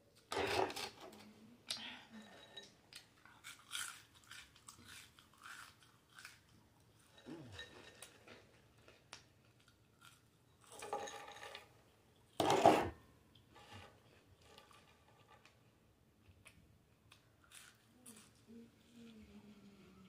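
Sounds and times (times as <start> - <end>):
woman chewing fries: 2.9 - 10.7.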